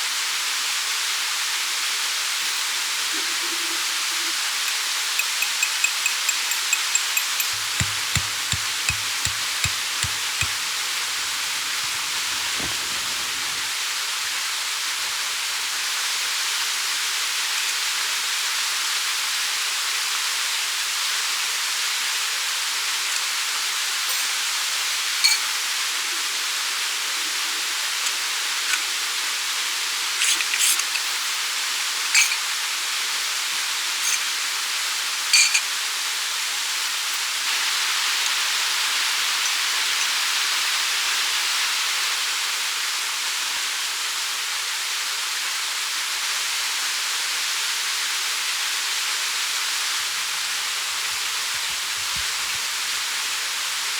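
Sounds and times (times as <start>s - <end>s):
stream water rushing: 7.5s - 16.0s.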